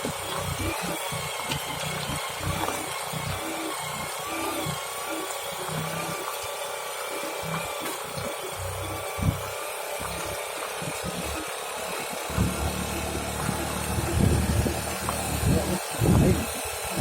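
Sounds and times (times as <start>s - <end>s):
small engine running with whine: 0.0s - 17.0s
wind and road noise: 12.3s - 17.0s.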